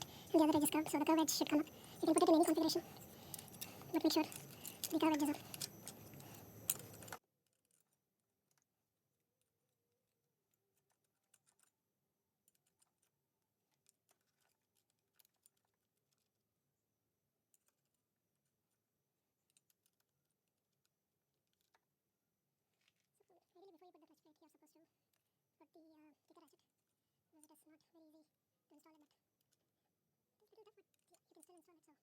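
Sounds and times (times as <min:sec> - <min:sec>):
low room hiss: 0:00.0 - 0:07.2.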